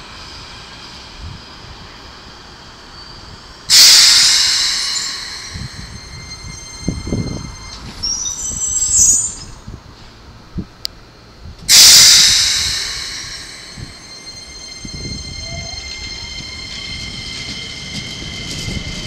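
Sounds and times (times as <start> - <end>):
train wheels squealing: 0.0 - 9.7, 11.7 - 19.0
wavering high squeaks: 4.0 - 9.7, 12.4 - 19.0.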